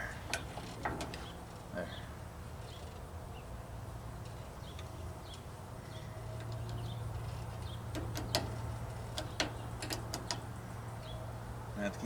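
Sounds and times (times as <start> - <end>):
sharp metallic clicks and taps: 7.9 - 10.6.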